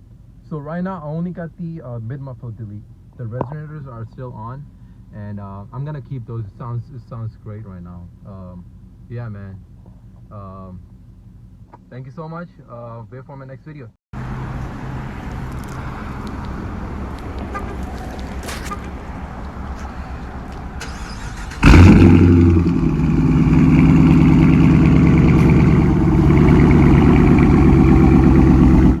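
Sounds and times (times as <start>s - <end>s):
car exhaust roaring: 14.2s - 29.0s.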